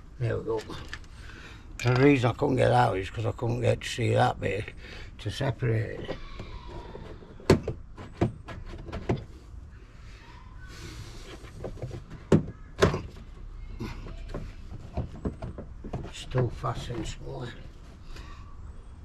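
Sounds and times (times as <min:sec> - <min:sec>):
plastic trim knocks and clunks: 0:05.9 - 0:09.3, 0:11.6 - 0:13.3, 0:13.9 - 0:16.6.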